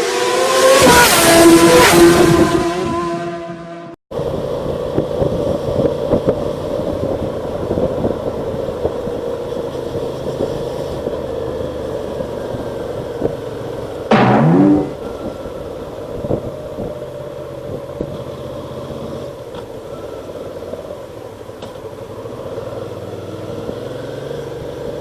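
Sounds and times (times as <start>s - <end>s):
motorcycle engine accelerating: 11.3s - 15.1s.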